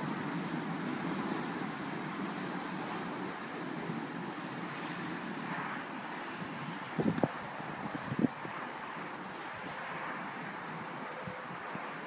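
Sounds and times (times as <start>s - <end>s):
locomotive engine: 0.0s - 12.0s
wheels rumbling on rail: 0.0s - 12.0s.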